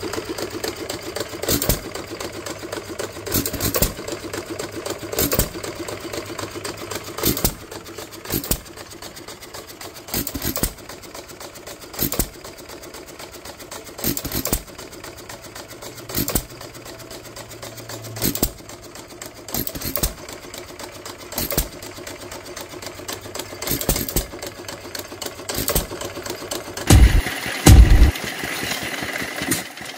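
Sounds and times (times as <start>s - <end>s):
rapid mechanical clatter: 0.0s - 29.9s
engine firing bangs: 26.9s - 28.1s.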